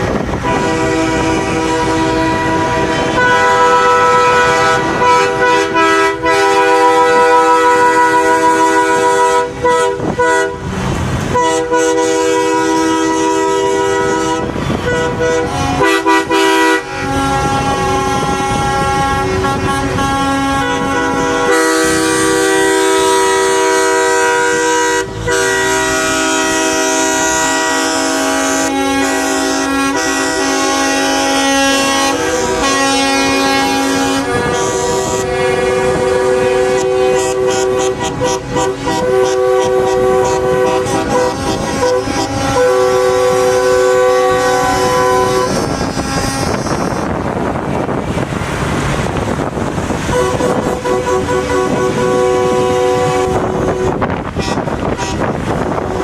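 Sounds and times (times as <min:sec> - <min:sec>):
truck air horns: 0:00.0 - 0:48.3, 0:49.0 - 0:56.0.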